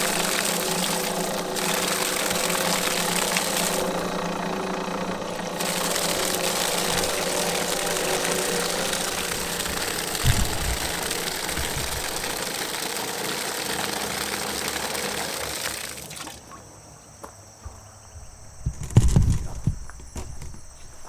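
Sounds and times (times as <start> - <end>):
pump motor hum: 0.0 - 16.6
water rushing through pump: 0.0 - 16.6.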